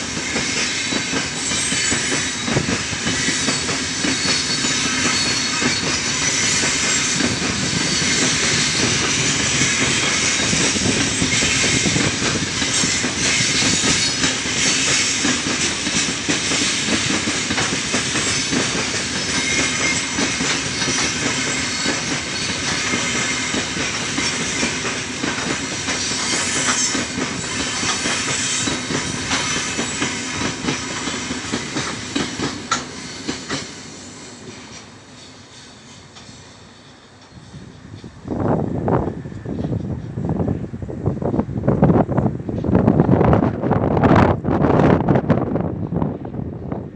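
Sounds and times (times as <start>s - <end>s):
freight train wheels clattering: 0.0s - 38.2s.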